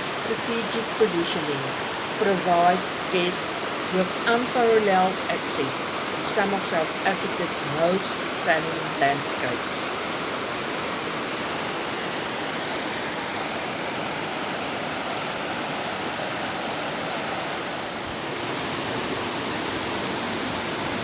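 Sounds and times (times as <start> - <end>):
rushing water: 0.0 - 21.0.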